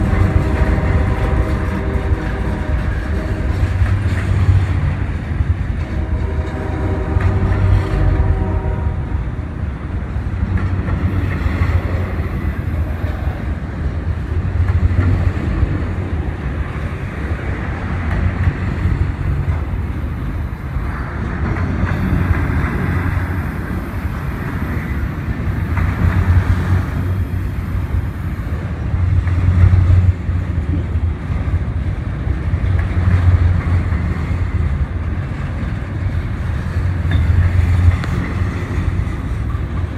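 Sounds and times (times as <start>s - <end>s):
train horn: 0.0s - 4.7s, 5.8s - 9.4s
train rumbling past: 0.0s - 39.9s.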